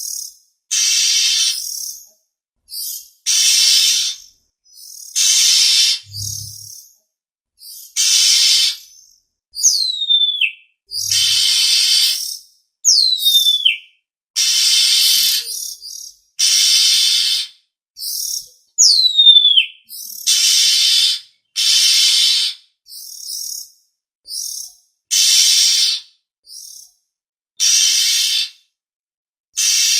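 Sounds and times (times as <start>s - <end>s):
harsh rasping bird calls: 0.0s - 2.0s, 2.7s - 6.9s, 7.6s - 13.8s, 14.4s - 23.7s, 24.3s - 26.8s, 27.6s - 28.6s, 29.6s - 29.9s
falling bird whistle: 0.1s - 1.9s, 2.7s - 4.3s, 4.9s - 6.8s, 9.6s - 13.9s, 14.5s - 23.6s, 27.6s - 28.6s, 29.6s - 29.9s
short bird chirps: 2.7s - 6.8s.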